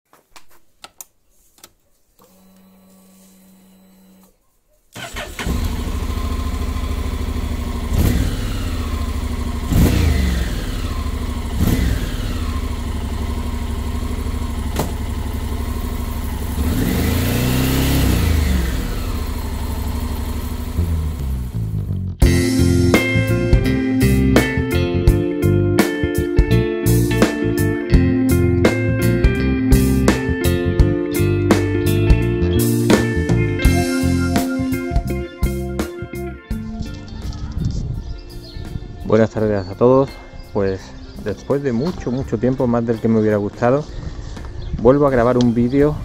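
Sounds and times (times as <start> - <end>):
engine revving: 5.0 - 22.2
motorcycle engine starting and idling: 5.0 - 22.2.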